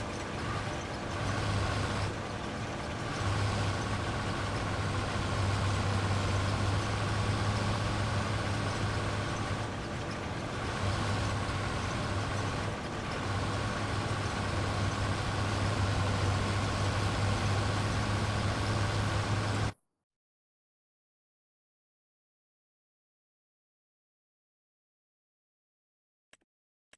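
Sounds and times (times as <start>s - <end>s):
diesel machinery engine hum: 0.0s - 19.8s.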